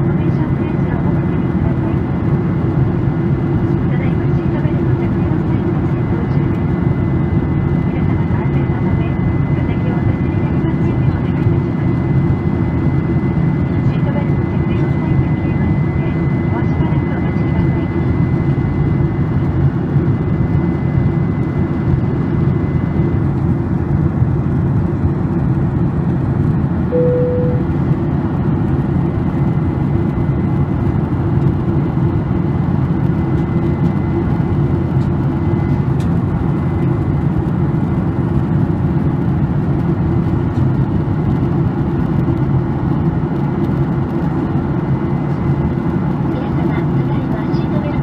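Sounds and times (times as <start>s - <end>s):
jet engine and airflow rumble: 0.0s - 48.0s
single cabin tone: 26.9s - 27.9s.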